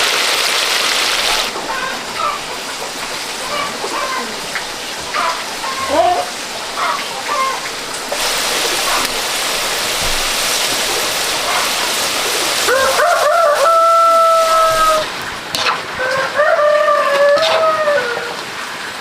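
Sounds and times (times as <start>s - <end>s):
rooster crowing: 12.6s - 15.1s, 16.0s - 18.4s.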